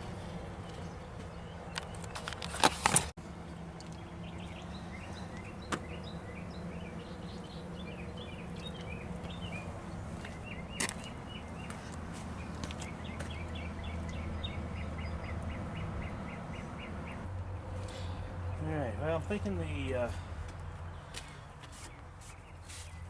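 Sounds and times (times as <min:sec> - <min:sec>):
birds calling: 0:00.0 - 0:23.0.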